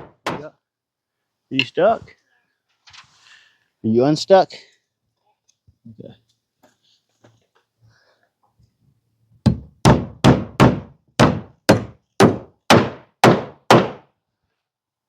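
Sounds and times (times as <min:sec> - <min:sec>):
hammer striking nail: 0:00.0 - 0:00.5, 0:09.4 - 0:14.0.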